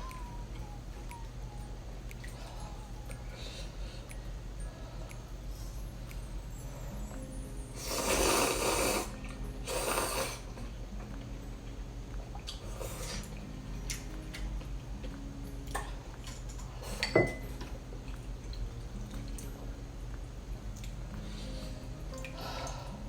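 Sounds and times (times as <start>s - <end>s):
loud slurps: 7.8s - 10.5s
sharp clink with ring: 17.0s - 17.6s.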